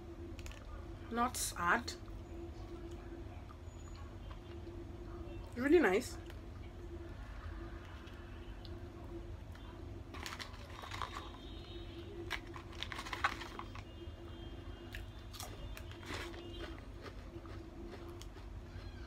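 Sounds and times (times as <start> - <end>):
chewing crunchy fried food: 9.5 - 14.0, 14.8 - 19.0
plastic sachet crinkling: 10.1 - 11.6, 12.2 - 13.9.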